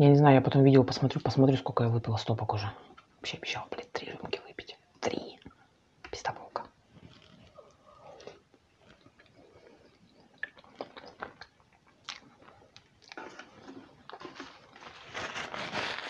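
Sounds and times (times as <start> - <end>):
person chewing with wet smacks: 7.1 - 14.4.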